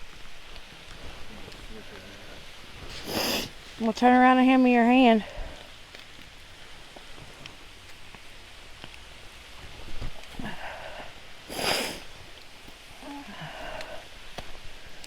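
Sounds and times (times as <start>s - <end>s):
falling water hiss: 0.0s - 15.0s
footsteps on muddy trail: 0.0s - 15.0s
loud brushing rustle: 2.3s - 3.8s.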